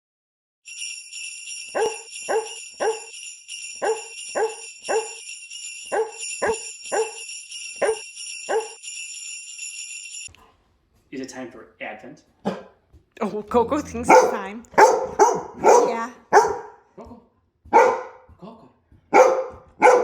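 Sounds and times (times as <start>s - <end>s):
sleigh bells jingling: 0.7s - 10.4s, 13.3s - 16.7s, 17.8s - 18.2s, 19.2s - 20.0s
dog barking: 1.8s - 3.1s, 3.8s - 5.2s, 5.9s - 7.2s, 7.8s - 8.8s, 12.4s - 12.8s, 14.0s - 16.9s, 17.7s - 18.3s, 19.1s - 20.0s.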